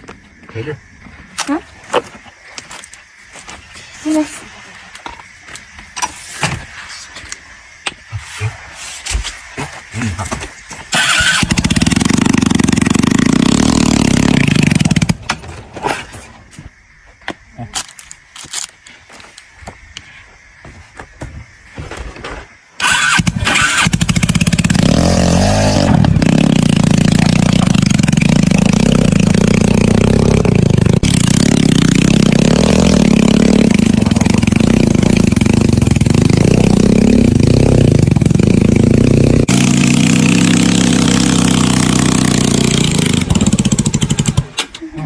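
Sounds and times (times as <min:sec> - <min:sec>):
motorcycle engine revving: 0:10.9 - 0:15.2, 0:22.8 - 0:44.6.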